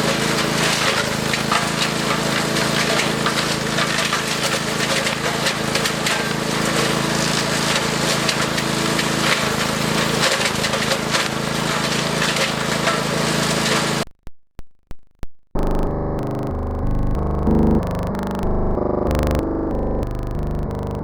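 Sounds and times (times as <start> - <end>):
wood chipper engine hum: 0.0 - 14.0
branches cracking and splintering: 0.4 - 13.8
clicks: 14.0 - 21.0
electronic music: 15.6 - 21.0.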